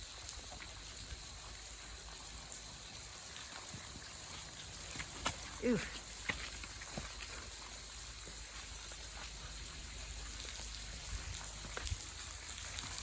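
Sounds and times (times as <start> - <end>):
steady hiss: 0.0 - 13.0
water dripping in cave: 0.0 - 13.0.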